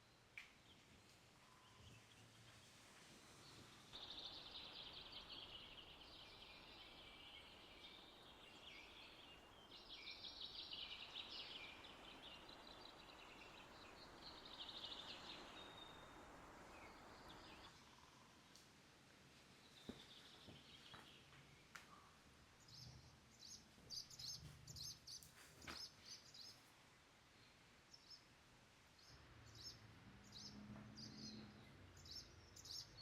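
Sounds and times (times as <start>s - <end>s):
faint trilling birdsong: 0.0s - 18.4s, 19.8s - 26.6s, 29.0s - 33.0s
soft outdoor hiss: 0.0s - 33.0s.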